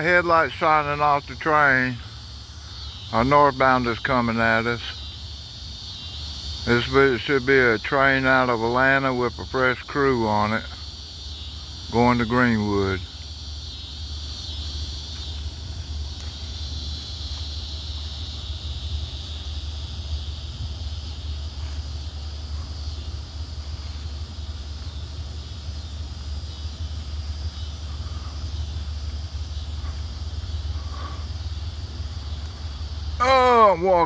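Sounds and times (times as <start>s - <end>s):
insects chirring: 0.0s - 34.0s
diesel freight train rumble: 14.0s - 34.0s.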